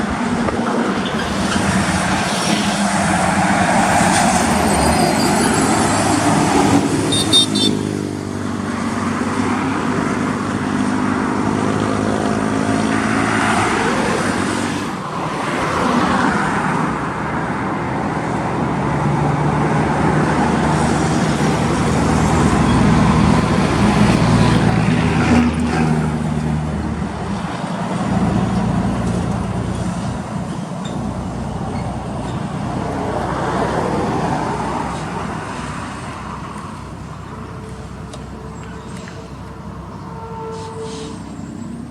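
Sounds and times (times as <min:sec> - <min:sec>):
traffic noise: 0:00.0 - 0:41.9
heavy vehicle engine running: 0:16.5 - 0:41.9.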